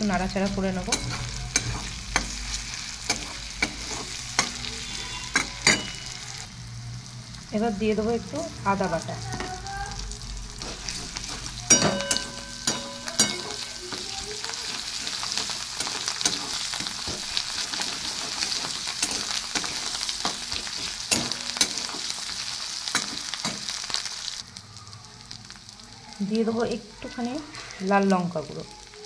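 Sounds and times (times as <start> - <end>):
masala sizzling in hot oil: 0.0 - 29.0
metal spatula scraping a pan: 0.1 - 6.5, 10.6 - 24.0.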